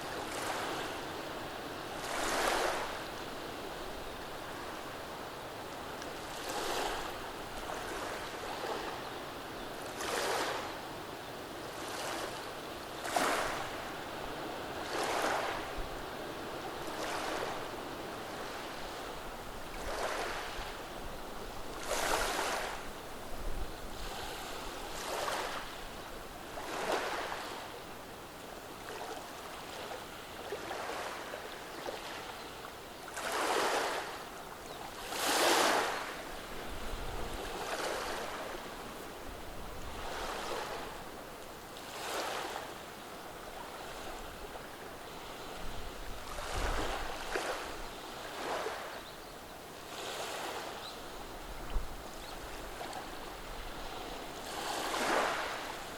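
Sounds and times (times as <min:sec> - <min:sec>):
soft hiss of water: 0:00.0 - 0:55.9
waves washing over cobblestones: 0:51.4 - 0:55.9.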